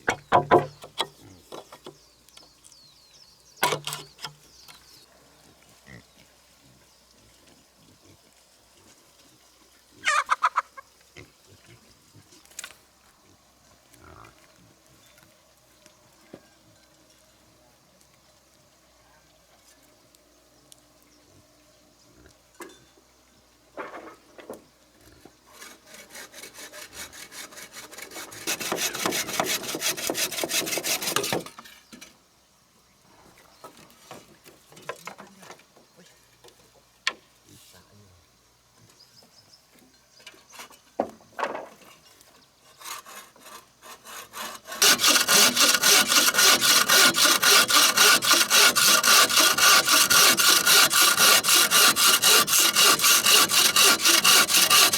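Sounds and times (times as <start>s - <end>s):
knocks: 0.1s - 1.0s
hand saw cutting wood: 0.1s - 2.0s, 3.6s - 4.7s, 25.5s - 31.6s, 42.6s - 54.9s.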